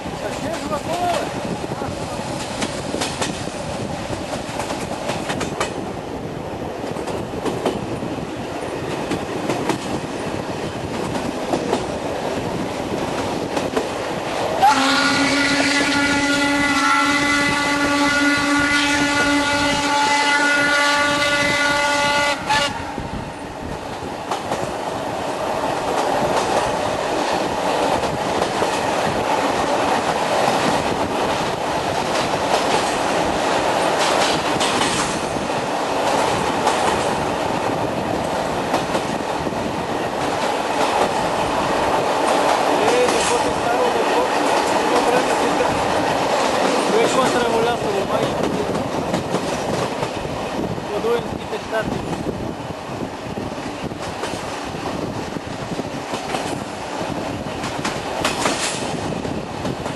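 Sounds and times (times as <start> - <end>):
train wheels clattering over rails: 0.0 - 22.7, 23.6 - 59.9
steam locomotive whistle: 14.6 - 23.0.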